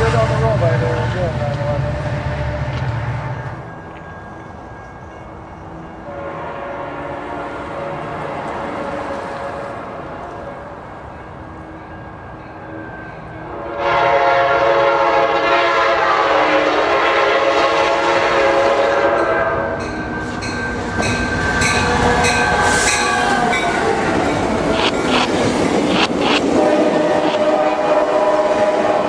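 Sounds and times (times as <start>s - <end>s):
train air horn blast: 6.0s - 10.6s, 13.4s - 19.8s, 21.5s - 24.2s, 26.5s - 29.0s
train wheels clattering on rails: 19.1s - 29.0s.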